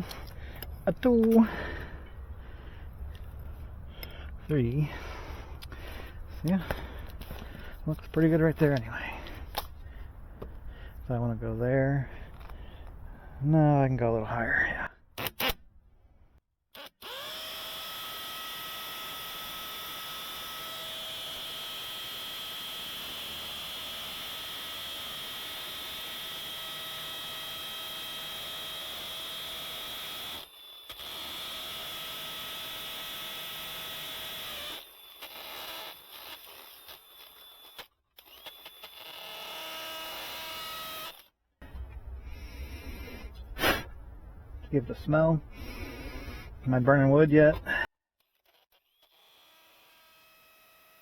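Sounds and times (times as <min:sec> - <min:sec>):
power drill whining: 0:16.7 - 0:43.4, 0:45.5 - 0:46.6, 0:47.7 - 0:51.0.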